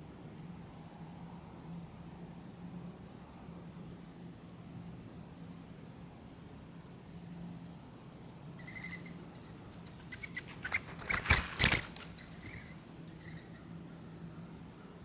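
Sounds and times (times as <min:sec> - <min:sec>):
faint high bird chirps: 0:08.6 - 0:13.7
birds clicking and tapping at feeder: 0:10.1 - 0:12.7.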